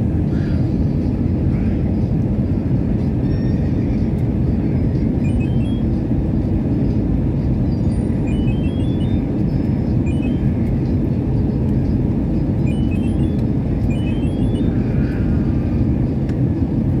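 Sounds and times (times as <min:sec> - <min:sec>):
airliner cabin engine rumble: 0:00.0 - 0:17.0
faint high chirps: 0:10.1 - 0:10.6, 0:12.7 - 0:14.9.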